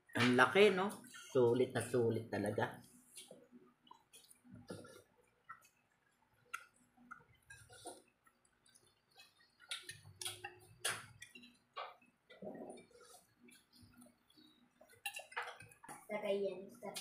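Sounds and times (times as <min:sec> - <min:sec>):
wet chewing clicks and smacks: 0:03.7 - 0:12.4.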